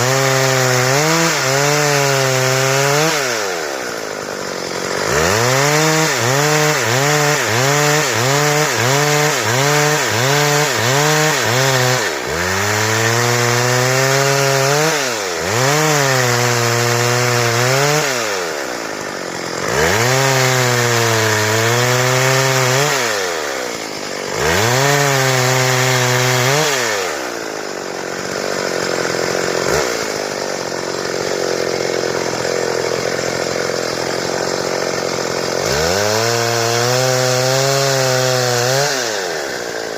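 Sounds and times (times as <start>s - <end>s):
chainsaw cutting boards: 0.0s - 39.9s.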